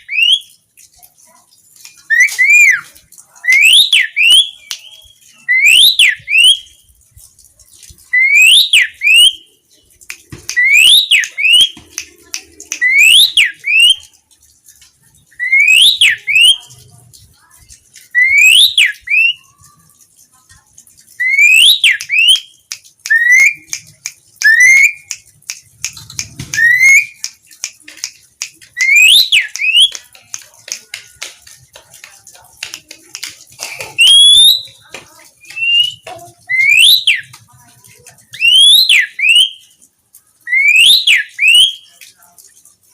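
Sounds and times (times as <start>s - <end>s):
starling whistled song: 0.0s - 0.6s, 2.0s - 6.8s, 8.1s - 9.5s, 10.5s - 11.8s, 12.7s - 14.1s, 15.3s - 16.7s, 18.1s - 19.5s, 21.2s - 23.8s, 24.4s - 25.1s, 26.5s - 27.2s, 28.8s - 30.0s, 33.9s - 37.4s, 38.3s - 39.8s, 40.4s - 42.0s
bird clicks and chatter: 0.0s - 42.9s.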